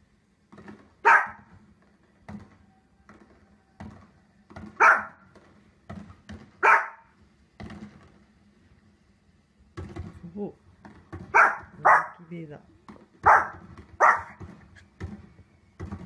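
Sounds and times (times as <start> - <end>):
small dog barking: 1.0 - 1.5, 4.8 - 5.2, 6.6 - 7.1, 11.3 - 12.3, 13.2 - 14.4.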